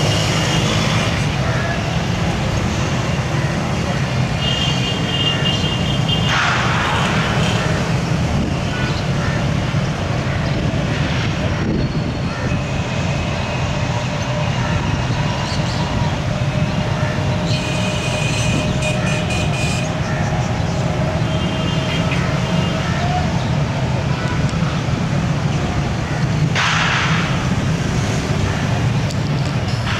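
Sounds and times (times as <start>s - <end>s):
train rumbling on track: 6.2s - 29.9s.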